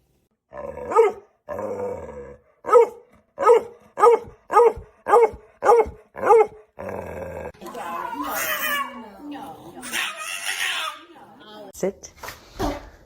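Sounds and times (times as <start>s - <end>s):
dog barking: 0.8s - 1.3s, 2.6s - 6.6s.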